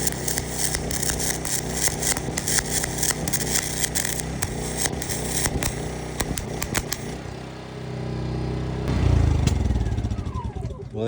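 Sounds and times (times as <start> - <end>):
welding arc crackling: 0.0 - 7.9
generator engine running: 0.0 - 11.0.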